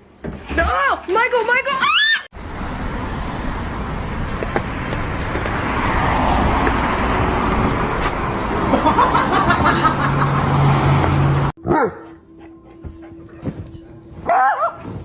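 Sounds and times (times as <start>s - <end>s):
motor vehicle rushing noise: 2.3s - 11.6s.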